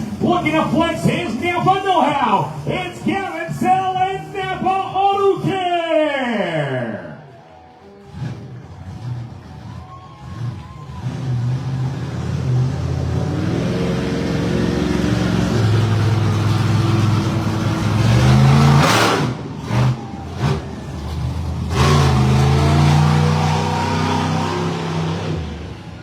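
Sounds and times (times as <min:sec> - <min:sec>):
truck engine revving: 0:07.2 - 0:26.0.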